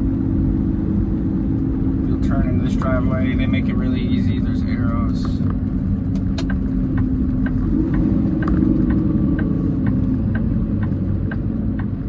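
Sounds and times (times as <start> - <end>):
diesel truck engine rumbling: 0.0 - 12.0
light ticking: 6.1 - 12.0.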